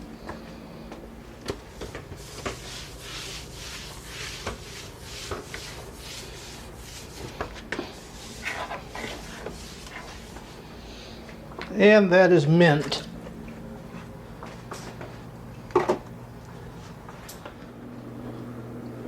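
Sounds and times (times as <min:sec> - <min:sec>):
damp rag wiping floor: 0:00.2 - 0:11.8, 0:12.7 - 0:15.3.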